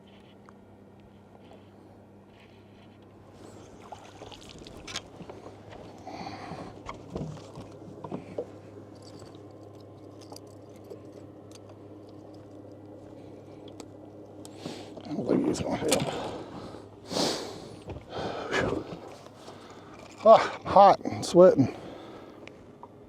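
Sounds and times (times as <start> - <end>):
steady low hum: 0.0 - 23.0
water sloshing and pouring: 3.4 - 5.6.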